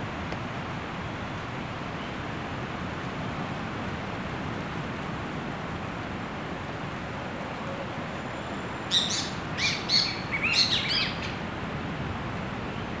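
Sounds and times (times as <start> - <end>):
steady background hiss: 0.0 - 13.0
bird calling in high notes: 8.3 - 11.4.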